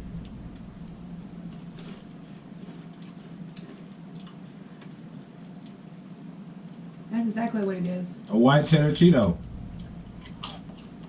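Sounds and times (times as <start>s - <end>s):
low room hum: 0.0s - 11.0s
person chewing crispy snack: 0.2s - 5.8s, 10.1s - 11.0s.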